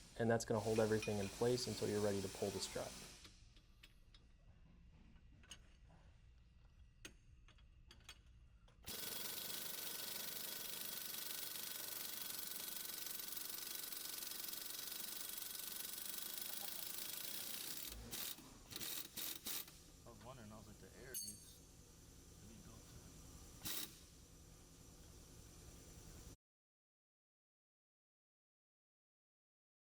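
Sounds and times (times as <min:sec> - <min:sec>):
power wrench spinning: 0:08.9 - 0:19.7, 0:23.6 - 0:24.0.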